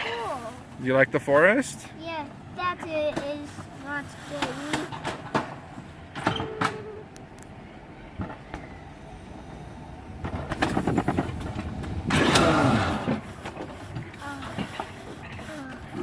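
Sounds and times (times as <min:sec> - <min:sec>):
coaster cable clattering clacks: 0:10.2 - 0:16.0.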